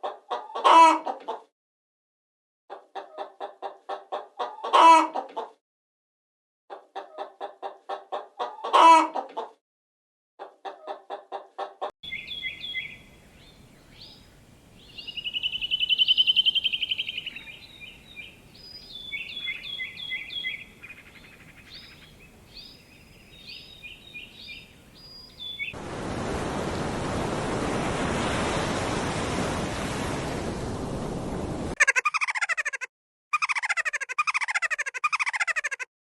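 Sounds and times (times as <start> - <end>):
birds chirping: 12.0 - 25.8
loud bird trill: 12.1 - 25.8
steady rushing noise: 25.8 - 31.8.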